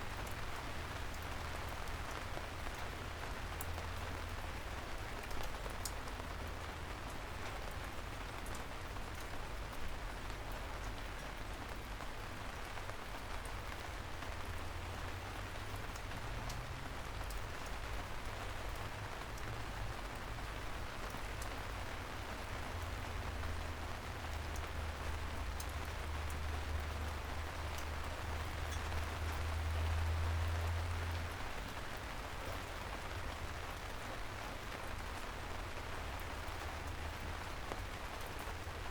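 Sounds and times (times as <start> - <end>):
soft rain hiss: 0.0 - 38.9.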